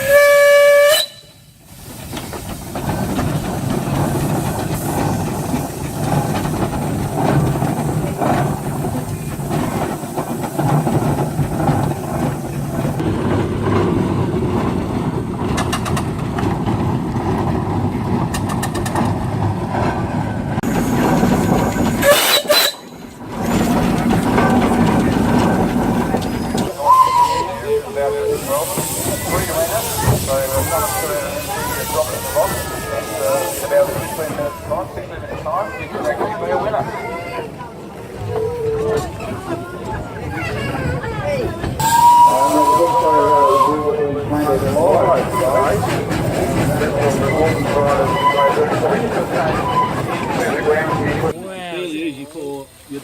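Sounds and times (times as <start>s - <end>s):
steam train whistle: 0.0s - 1.6s, 22.0s - 22.9s, 26.8s - 27.5s, 41.8s - 44.0s
train wheels rumbling on track: 0.0s - 53.0s.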